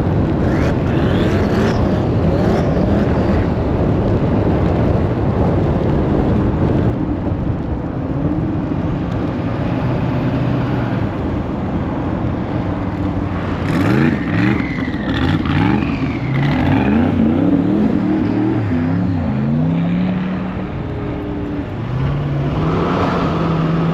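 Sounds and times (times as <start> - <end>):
car engine revving: 0.1 - 3.7, 13.0 - 23.9.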